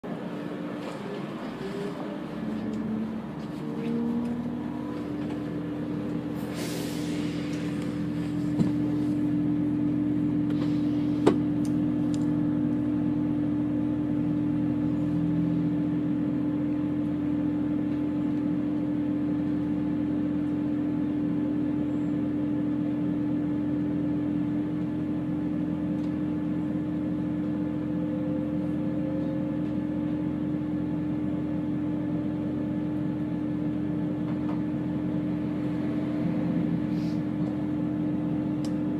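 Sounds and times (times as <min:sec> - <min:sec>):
diesel train engine drone: 0:00.0 - 0:38.9
air hiss: 0:06.3 - 0:08.4.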